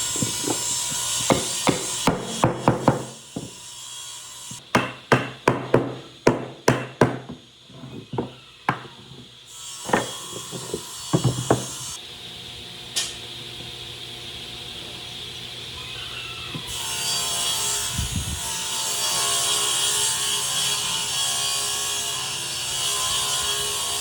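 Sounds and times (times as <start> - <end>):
steady scraping: 0.0 - 3.6, 7.2 - 12.0
hammer striking wood: 0.1 - 3.6, 4.5 - 12.0.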